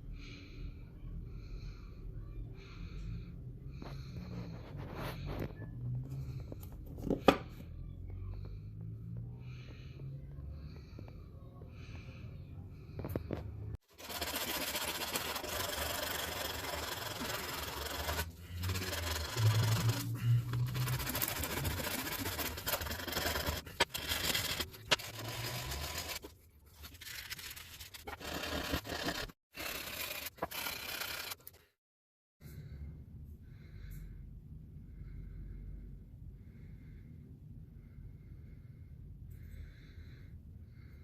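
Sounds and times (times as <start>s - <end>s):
abrasive scraping and rubbing: 13.9s - 31.6s
low hum: 16.3s - 25.1s.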